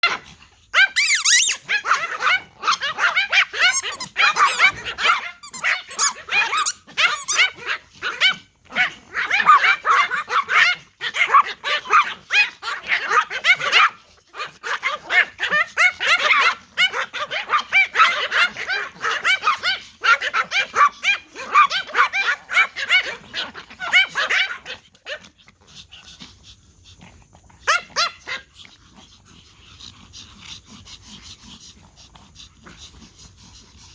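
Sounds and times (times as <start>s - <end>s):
small dogs yapping: 0.0s - 33.9s.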